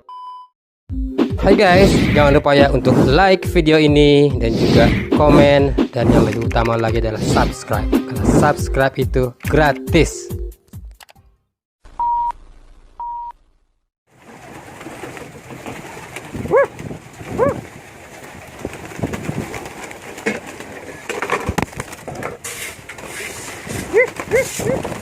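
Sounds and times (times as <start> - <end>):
pigeons cooing: 14.6 - 21.1, 23.0 - 25.0.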